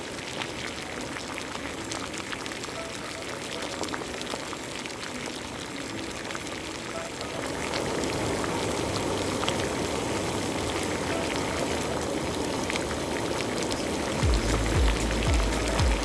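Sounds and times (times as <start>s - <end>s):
liquid boiling in a pot: 0.0s - 16.0s.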